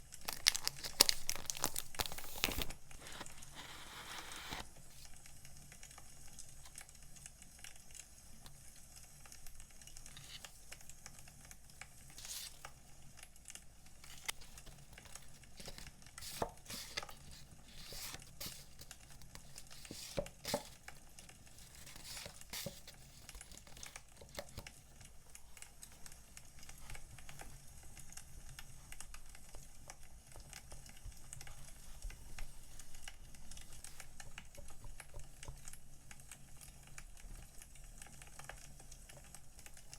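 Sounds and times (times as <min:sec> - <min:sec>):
packaging rustling: 0:00.0 - 0:04.7, 0:12.1 - 0:12.8, 0:13.9 - 0:25.6.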